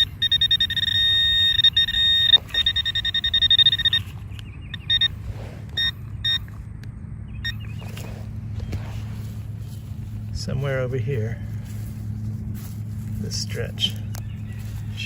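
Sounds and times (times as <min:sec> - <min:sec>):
metal detector beeping tone: 0:00.0 - 0:06.6, 0:07.3 - 0:08.2.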